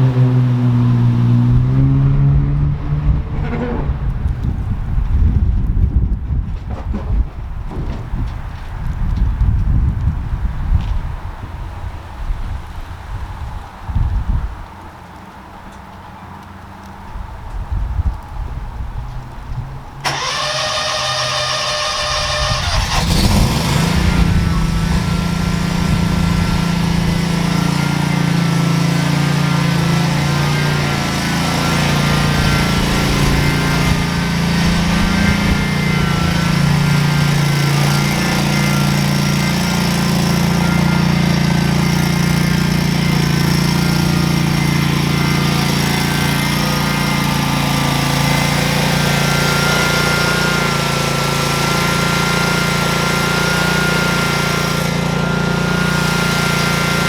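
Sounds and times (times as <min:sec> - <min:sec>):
lawn mower engine running: 0:19.4 - 0:57.0.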